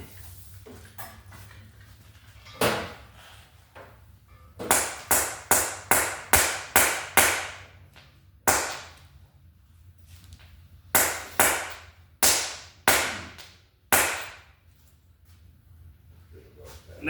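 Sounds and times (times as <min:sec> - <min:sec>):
hammer striking metal: 0:04.6 - 0:07.7, 0:08.5 - 0:09.0, 0:11.0 - 0:14.5.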